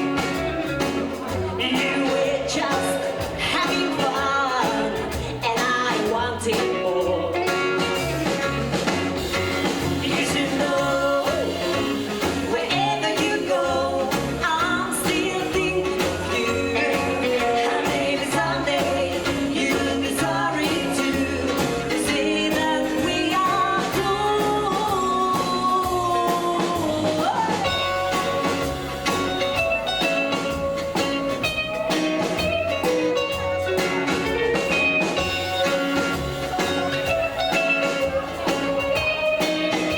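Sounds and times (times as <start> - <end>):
bass line: 0.0 - 39.9
drums: 0.0 - 39.9
guitar: 0.0 - 39.9
person singing: 1.3 - 8.2, 9.6 - 29.2.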